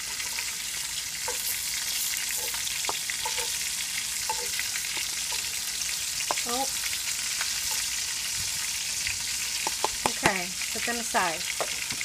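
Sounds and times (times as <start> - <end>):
frying sizzle: 0.0 - 12.0
metal tongs scraping skillet: 1.2 - 6.6.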